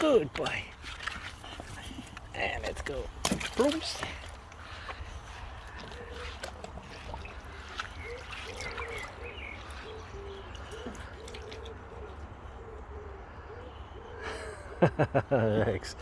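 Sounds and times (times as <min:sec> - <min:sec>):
water splashing in a pool: 0:00.0 - 0:12.4.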